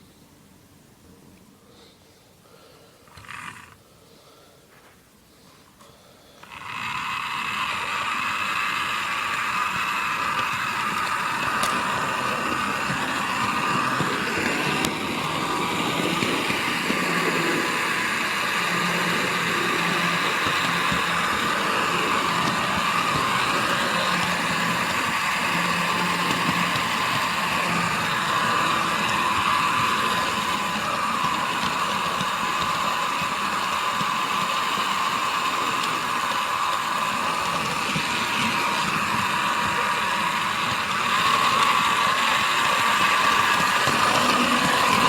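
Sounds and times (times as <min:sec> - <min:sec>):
model train running on track: 0:06.4 - 0:45.0.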